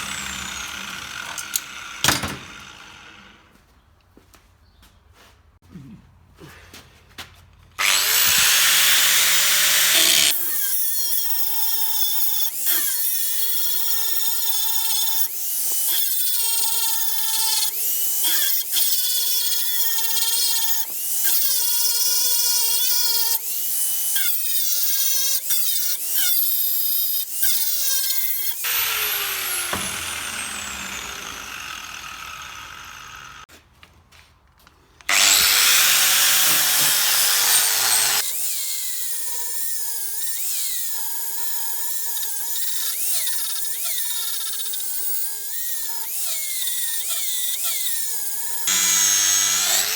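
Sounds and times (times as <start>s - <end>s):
power tool motor revving: 0.0s - 3.5s, 7.8s - 13.0s, 27.4s - 33.5s, 35.1s - 49.9s.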